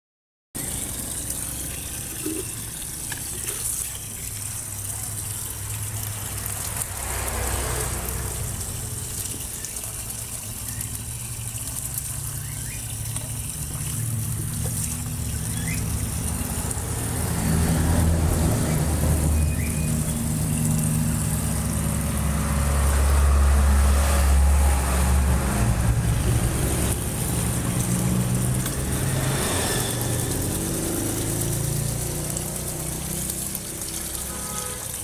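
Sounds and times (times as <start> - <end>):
running water splashing: 0.6 - 35.0.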